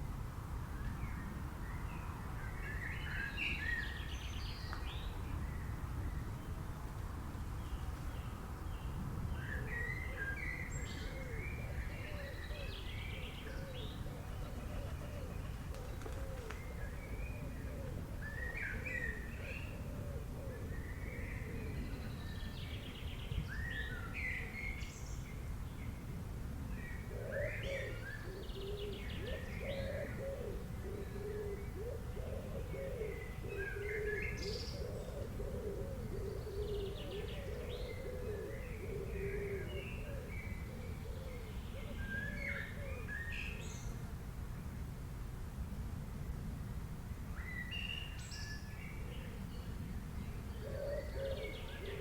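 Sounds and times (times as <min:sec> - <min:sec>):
low cooing call: 0:09.5 - 0:22.4, 0:26.9 - 0:43.6, 0:50.4 - 0:52.0.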